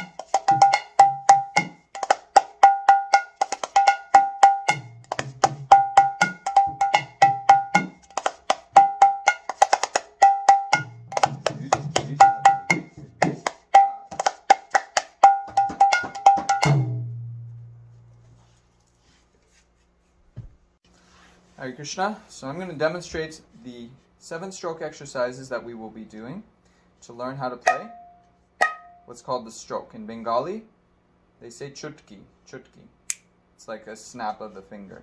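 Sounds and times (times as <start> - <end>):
drum treble strokes: 0.0 - 14.2.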